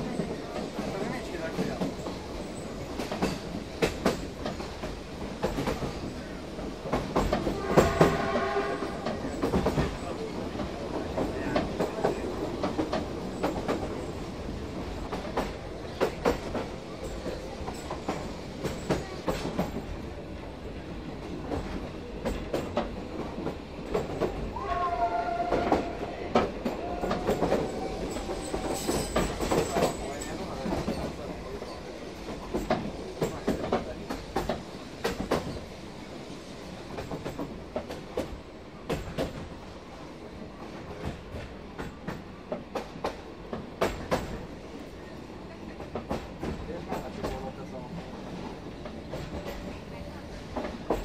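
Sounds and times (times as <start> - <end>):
train wheels clicking over rail joints: 0.0 - 20.1, 21.2 - 24.5, 25.5 - 39.7, 40.3 - 44.8, 45.6 - 51.0
locomotive hooter: 7.5 - 9.0, 24.6 - 26.1.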